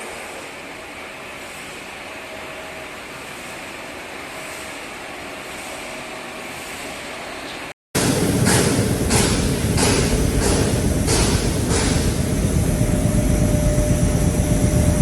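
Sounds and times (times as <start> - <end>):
faint machine whine: 8.0 - 15.0
production line machinery: 8.0 - 15.0.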